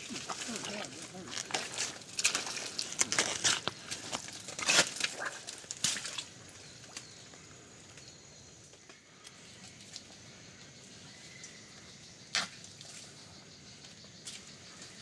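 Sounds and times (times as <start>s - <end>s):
undergrowth rustling and crackling: 0.0s - 7.2s.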